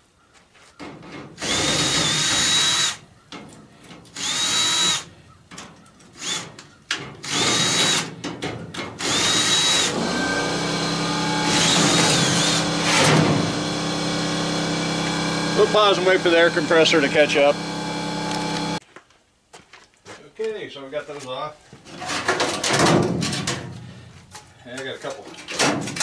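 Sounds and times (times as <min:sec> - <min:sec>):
air compressor motor humming: 0:09.2 - 0:18.8.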